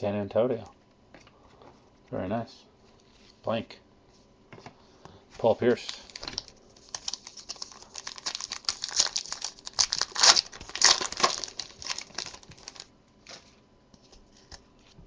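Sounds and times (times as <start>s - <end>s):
plastic wrapper and cards crinkling: 5.7s - 15.0s.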